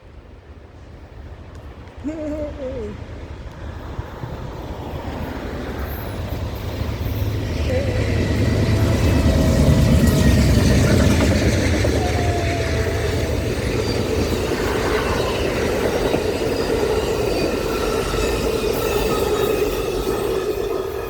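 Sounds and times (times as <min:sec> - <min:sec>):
train rolling on rails: 0:00.0 - 0:21.0.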